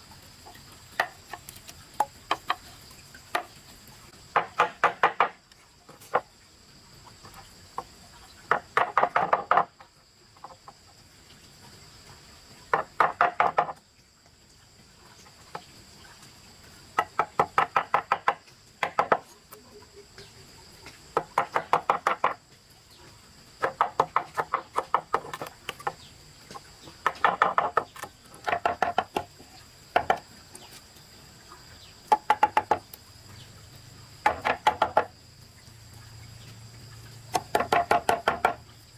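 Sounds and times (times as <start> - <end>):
high insect drone: 14.8 - 38.9
rapid knocking: 27.0 - 29.3, 32.1 - 32.9, 34.2 - 35.1, 37.3 - 38.6.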